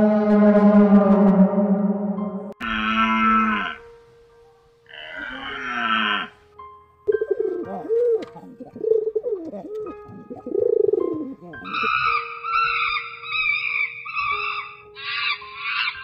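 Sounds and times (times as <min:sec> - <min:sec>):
high chattering animal calls: 0:02.6 - 0:03.9, 0:04.9 - 0:06.4, 0:11.6 - 0:16.0
pigeon cooing: 0:07.1 - 0:13.0.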